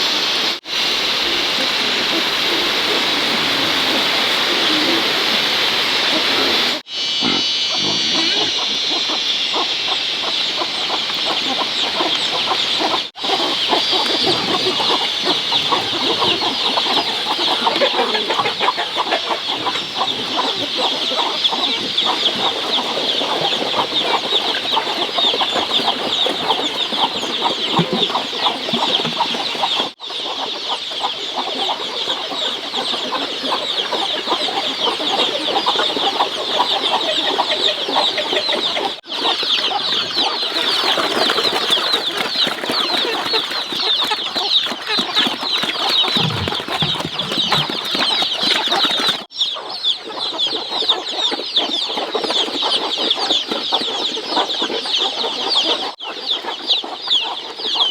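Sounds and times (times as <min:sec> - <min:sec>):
chickens clucking: 0:01.1 - 0:57.9.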